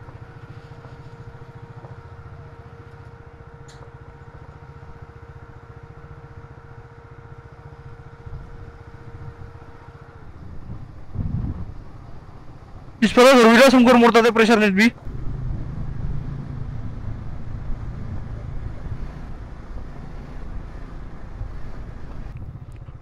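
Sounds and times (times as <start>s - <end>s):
motorcycle engine running: 0.0s - 12.9s, 15.0s - 23.0s
faint steady whine: 0.0s - 23.0s.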